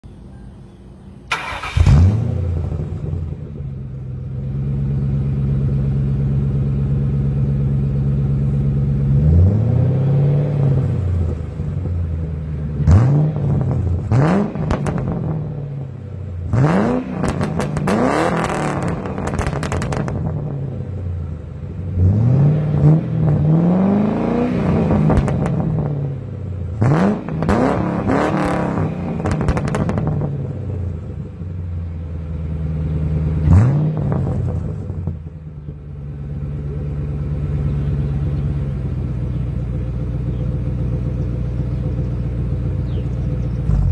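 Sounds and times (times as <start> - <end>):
car engine idling and revving: 1.3 - 43.9.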